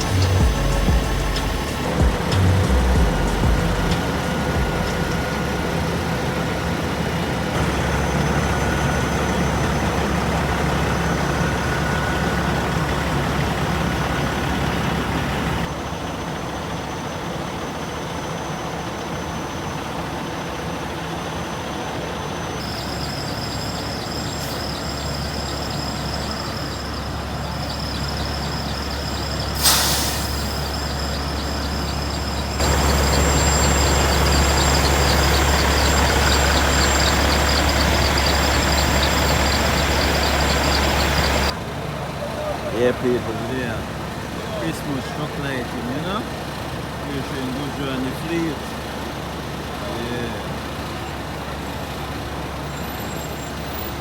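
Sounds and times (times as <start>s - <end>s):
truck engines idling: 0.0s - 54.0s
air brake hiss: 22.6s - 27.0s, 28.0s - 41.5s.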